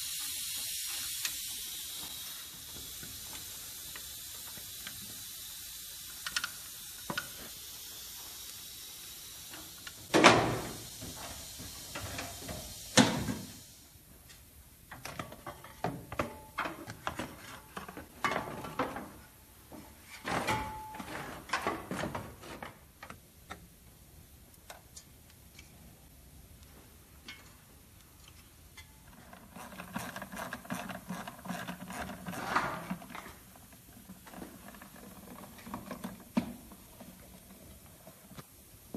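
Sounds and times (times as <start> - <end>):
ratchet ratcheting: 0.0 - 10.0
steady hiss: 0.0 - 38.9.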